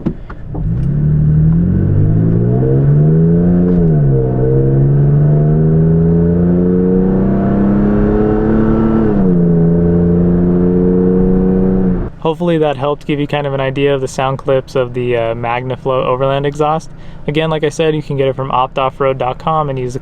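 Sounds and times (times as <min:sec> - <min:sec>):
truck engine accelerating hard: 0:00.4 - 0:12.2.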